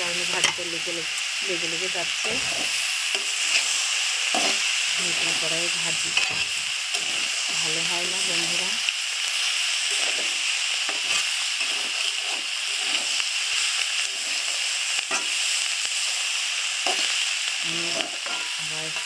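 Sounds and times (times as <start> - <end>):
vegetables sizzling in oil: 0.0 - 19.0
spatula scraping pan bottom: 4.3 - 4.7, 9.9 - 13.2.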